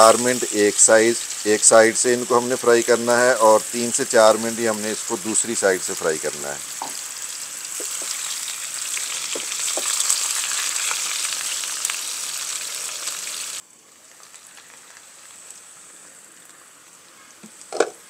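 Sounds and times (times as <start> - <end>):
potato slices sizzling in oil: 0.0 - 18.0.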